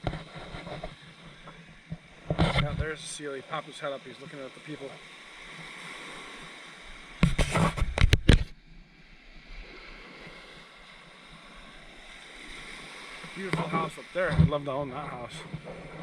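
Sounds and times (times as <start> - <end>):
surf washing on a beach: 0.0 - 16.0
rumbling burst on microphone: 1.9 - 3.0.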